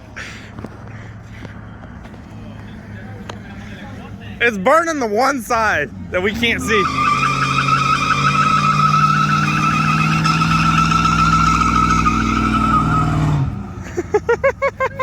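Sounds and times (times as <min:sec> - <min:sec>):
car engine at high revs: 0:05.6 - 0:15.0
tyre squealing: 0:05.9 - 0:14.1.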